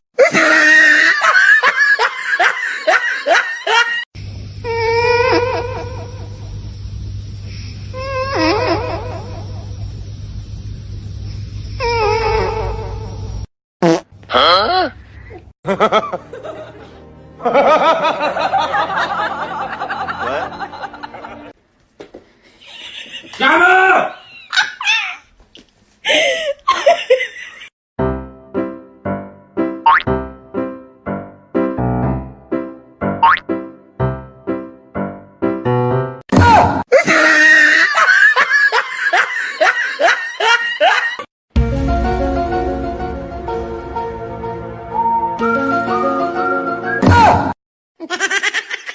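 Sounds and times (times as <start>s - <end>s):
person laughing: 0.2s - 4.0s, 14.4s - 21.5s, 22.5s - 25.3s, 26.0s - 27.7s, 36.9s - 41.3s, 48.0s - 48.9s
music: 15.8s - 21.5s, 28.0s - 36.2s, 41.5s - 47.5s
high-pitched chuckling laugh: 22.5s - 23.5s, 24.2s - 25.3s, 26.1s - 27.7s, 37.0s - 41.2s, 48.0s - 48.9s.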